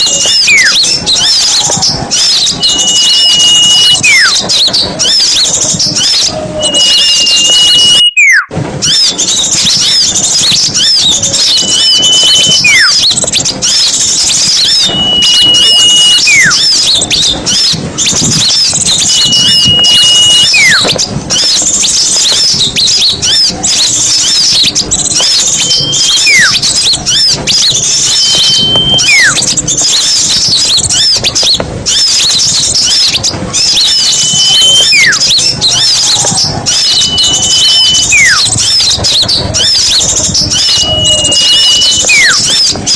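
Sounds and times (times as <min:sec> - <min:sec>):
songbirds chattering and twittering: 0:00.0 - 0:42.9.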